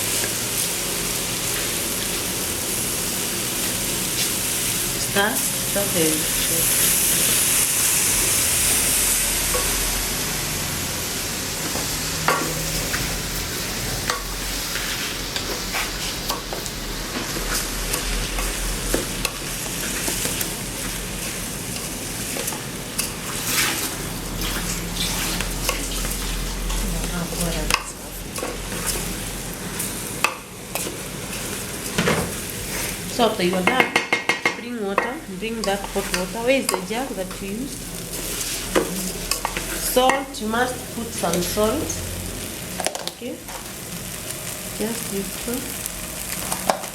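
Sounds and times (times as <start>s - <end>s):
food sizzling in a pan: 0.0s - 46.9s
spoon scraping and knocking pan: 33.5s - 37.4s.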